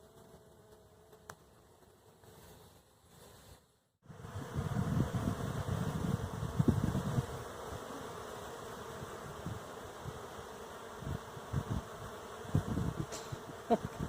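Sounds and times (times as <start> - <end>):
bees buzzing: 4.0 - 14.0.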